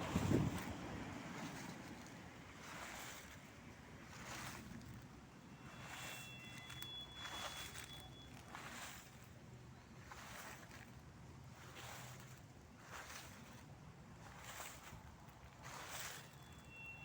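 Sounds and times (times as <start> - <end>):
dry leaves rustling: 0.0 - 17.0.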